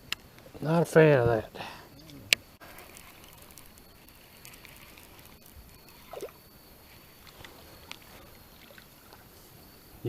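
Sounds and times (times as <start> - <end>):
small clicks: 2.0 - 6.3
water lapping against boat hull: 2.6 - 9.6.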